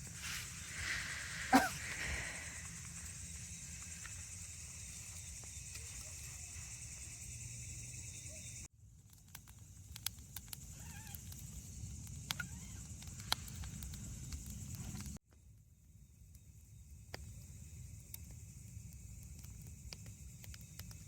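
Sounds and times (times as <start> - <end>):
steady hiss: 0.0 - 8.4
campfire wood crackling: 0.0 - 21.0.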